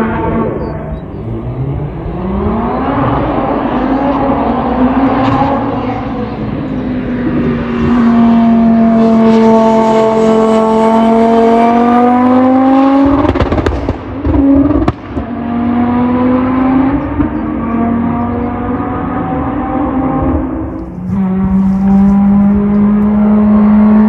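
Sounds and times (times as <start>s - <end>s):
race car engine revving: 0.0s - 24.0s
exhaust pops and crackles: 13.0s - 15.3s, 20.6s - 24.0s.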